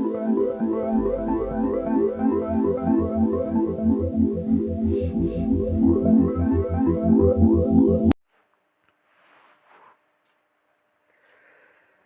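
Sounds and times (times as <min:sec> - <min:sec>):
synthesizer music with bass pulse: 0:00.0 - 0:08.2.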